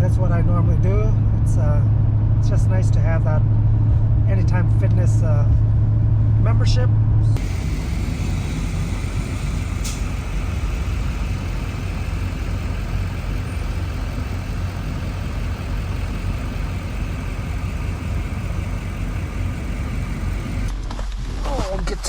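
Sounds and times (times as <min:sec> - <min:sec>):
road noise: 0:00.0 - 0:20.8
truck engine drone: 0:07.0 - 0:20.8.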